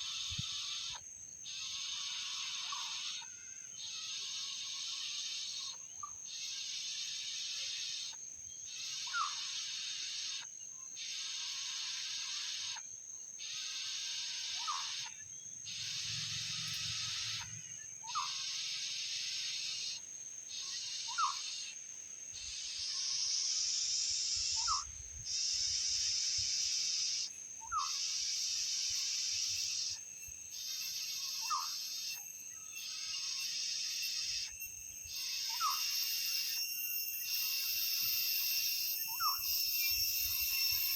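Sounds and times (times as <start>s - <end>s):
insects buzzing loudly: 0.0s - 40.9s.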